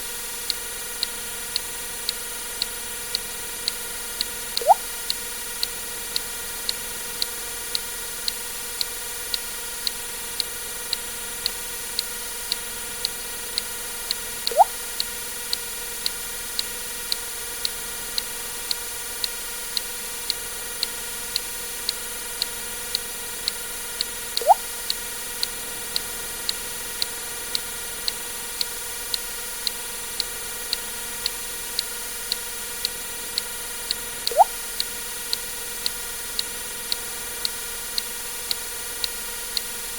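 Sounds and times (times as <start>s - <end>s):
steady ticking: 4.2s - 4.8s, 14.5s - 14.8s, 24.4s - 25.0s, 33.4s - 39.2s
sharp ticking: 4.6s - 4.8s, 14.5s - 14.8s, 24.4s - 24.7s, 34.3s - 34.9s
water drip plink: 4.6s - 4.9s, 14.5s - 14.8s, 24.4s - 24.7s, 34.3s - 34.6s.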